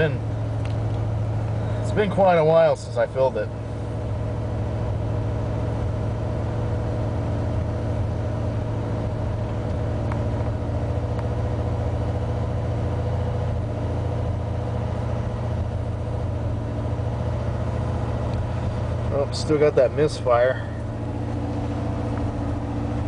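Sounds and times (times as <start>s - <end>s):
engine idling with misfire: 0.0s - 23.0s.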